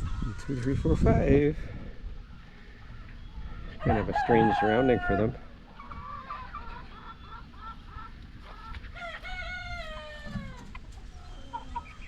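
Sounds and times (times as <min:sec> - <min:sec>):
chickens clucking: 0:00.0 - 0:12.0
rooster crowing: 0:03.6 - 0:05.5, 0:08.9 - 0:10.7.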